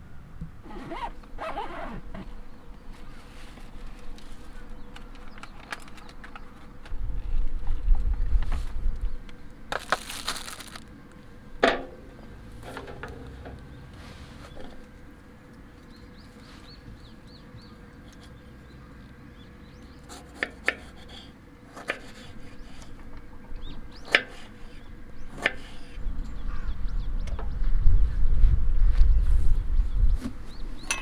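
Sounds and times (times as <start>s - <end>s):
small birds chirping: 15.6s - 20.4s.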